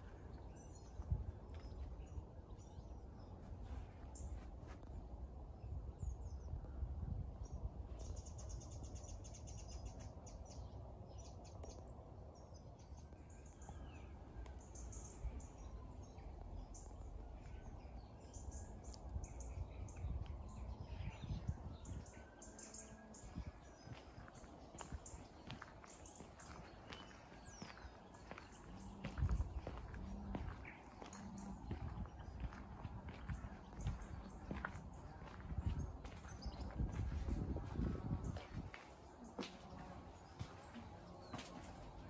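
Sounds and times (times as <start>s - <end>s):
steady low rumble: 0.0s - 12.0s, 26.4s - 42.0s
small birds chirping: 7.4s - 42.0s.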